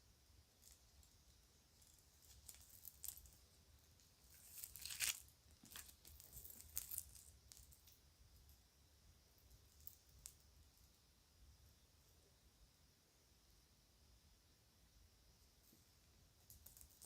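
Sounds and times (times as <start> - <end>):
toy jewelry clicking and clinking: 1.8 - 3.4, 4.3 - 8.0
bag crinkling: 4.3 - 7.7.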